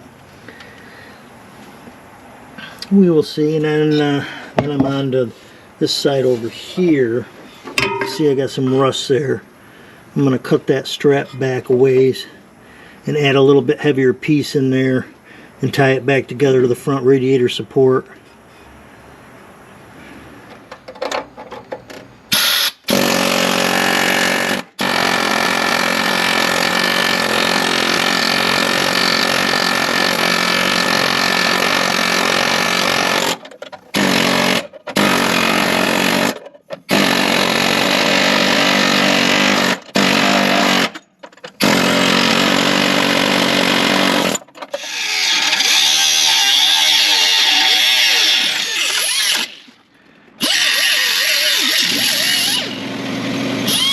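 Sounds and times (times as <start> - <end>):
electric grinder cutting steel: 22.4 - 33.4, 43.5 - 49.8, 50.4 - 53.0, 53.6 - 53.9.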